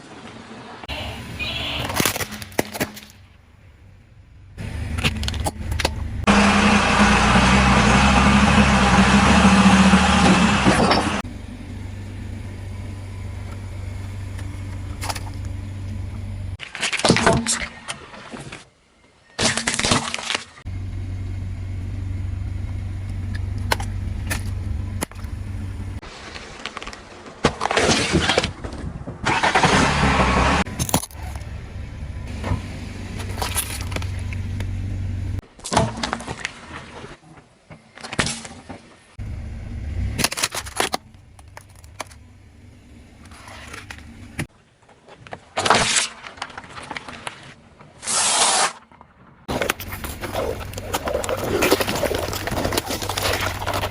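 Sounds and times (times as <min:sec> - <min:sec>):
car engine running: 0:03.6 - 0:16.6, 0:20.7 - 0:26.0, 0:29.8 - 0:35.4, 0:39.2 - 0:44.5, 0:49.5 - 0:53.9
tyres crushing objects: 0:26.2 - 0:31.5, 0:45.3 - 0:53.9.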